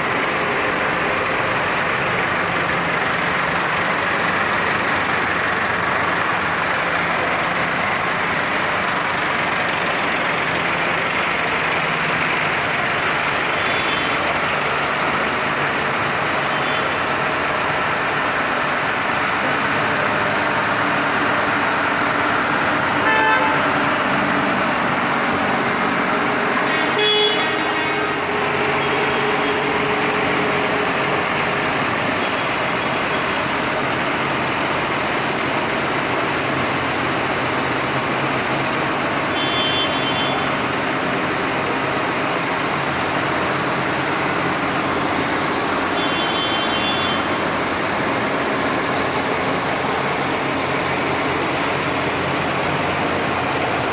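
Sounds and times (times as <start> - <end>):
tractor engines running: 0.0 - 53.9
horn toots: 23.0 - 23.9, 26.6 - 29.0.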